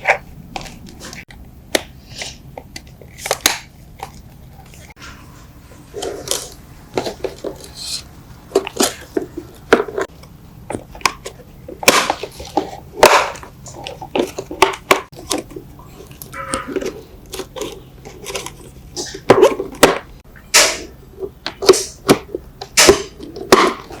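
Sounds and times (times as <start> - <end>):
clicks and knocks of hand work: 8.5 - 24.0.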